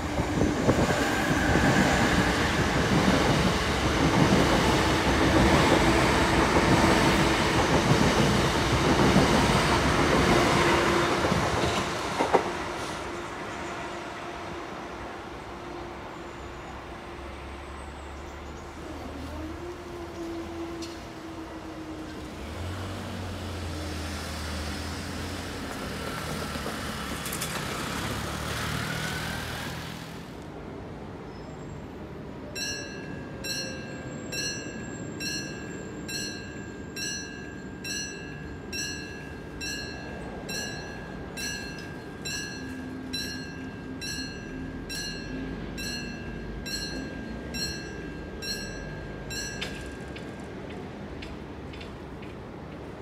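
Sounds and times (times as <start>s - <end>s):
electric train rumbling: 0.0s - 53.0s
level crossing warning bell: 32.6s - 51.1s.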